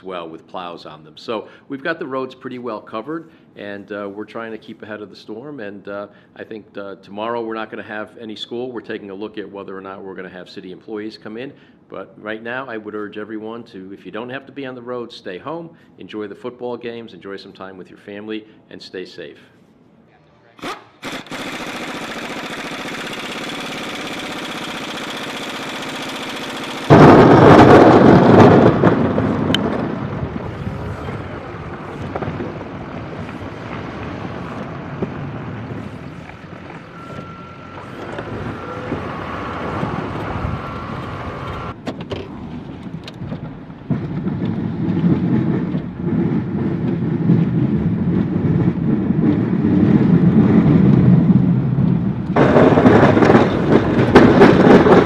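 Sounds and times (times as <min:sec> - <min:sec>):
trucks driving by: 0:22.5 - 0:47.8
low rumble: 0:26.9 - 0:41.8.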